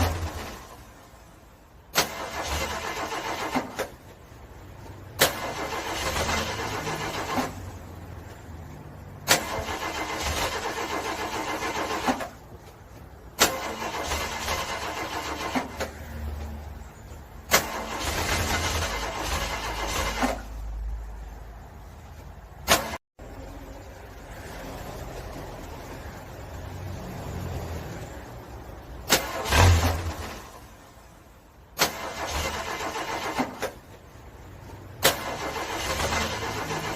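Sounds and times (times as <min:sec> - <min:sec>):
car engine cranking: 0:00.0 - 0:23.0, 0:29.0 - 0:36.9.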